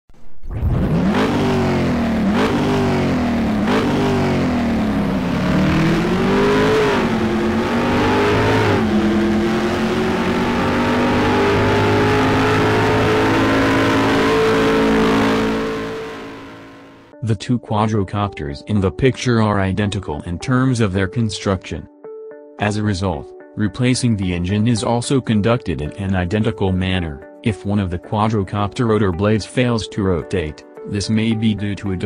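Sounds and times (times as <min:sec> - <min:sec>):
car engine accelerating through gears: 0:00.4 - 0:17.1.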